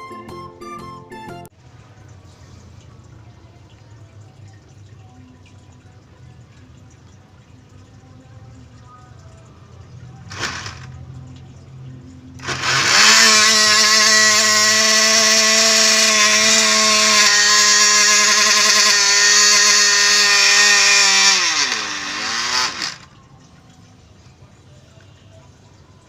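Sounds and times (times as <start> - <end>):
small electric motor whining: 10.3 - 10.9, 12.4 - 23.1.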